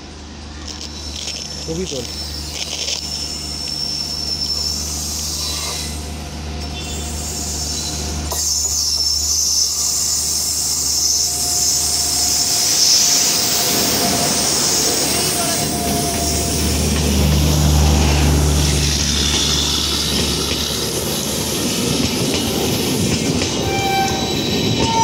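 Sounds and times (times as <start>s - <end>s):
train wheels hissing on rails: 0.6s - 25.0s.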